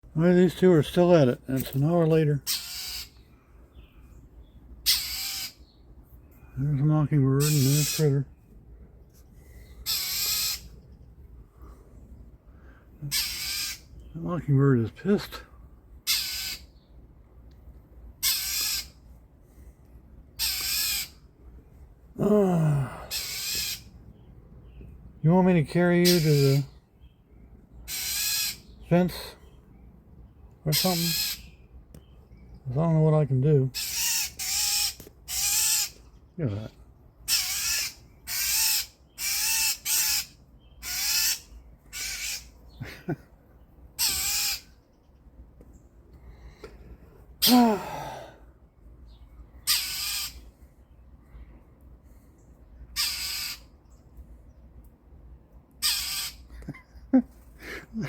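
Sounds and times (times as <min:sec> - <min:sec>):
bird harsh raspy scolding calls: 0:02.4 - 0:04.0, 0:04.8 - 0:05.9, 0:07.1 - 0:08.4, 0:09.7 - 0:11.0, 0:13.0 - 0:14.4, 0:16.0 - 0:17.0, 0:18.2 - 0:19.1, 0:20.3 - 0:21.3, 0:22.8 - 0:27.2, 0:27.8 - 0:29.7, 0:30.6 - 0:32.8, 0:33.7 - 0:43.2, 0:43.9 - 0:45.2, 0:49.1 - 0:50.6, 0:52.7 - 0:54.0, 0:55.8 - 0:58.0.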